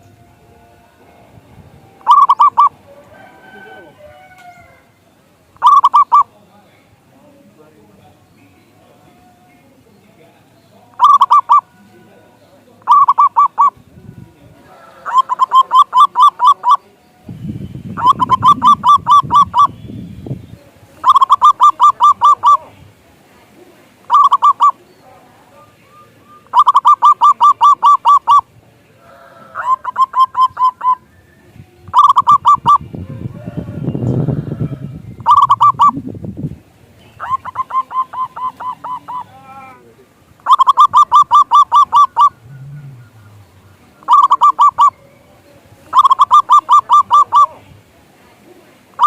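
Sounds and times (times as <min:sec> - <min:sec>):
dove cooing: 0:02.0 - 0:04.8, 0:05.6 - 0:06.3, 0:10.9 - 0:11.8, 0:12.8 - 0:13.8, 0:14.6 - 0:17.0, 0:18.0 - 0:19.8, 0:21.0 - 0:22.9, 0:23.5 - 0:31.1, 0:31.8 - 0:36.0, 0:37.2 - 0:47.7
low rumble: 0:42.3 - 0:44.0.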